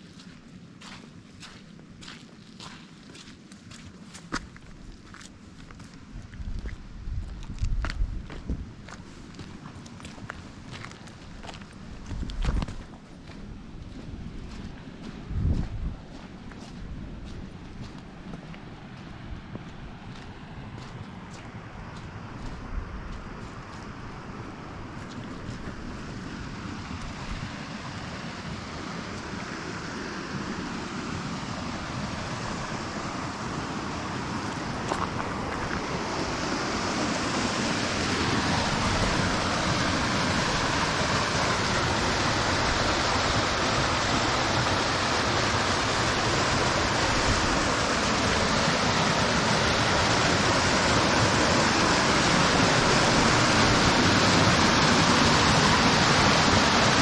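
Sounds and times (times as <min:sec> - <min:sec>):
waterfall rushing: 0:25.7 - 0:57.0.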